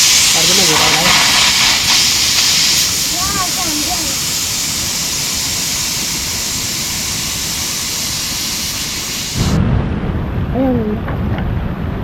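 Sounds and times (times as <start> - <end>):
loud rushing noise: 8.8 - 10.7.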